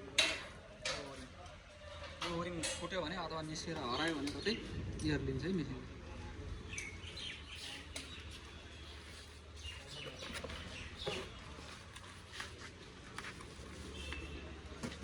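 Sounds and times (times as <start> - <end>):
faint birds chirping: 6.0 - 12.2.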